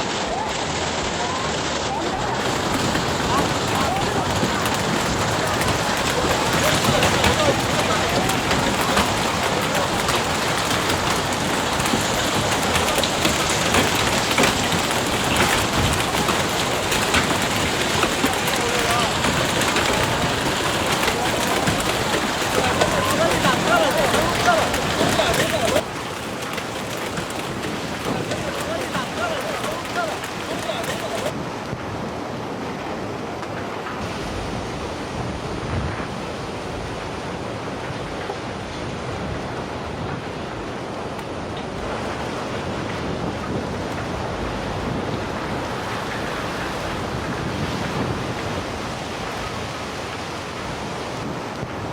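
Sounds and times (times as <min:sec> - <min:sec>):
heavy rain falling: 0:00.0 - 0:32.1
floodwater rushing: 0:00.0 - 0:51.9.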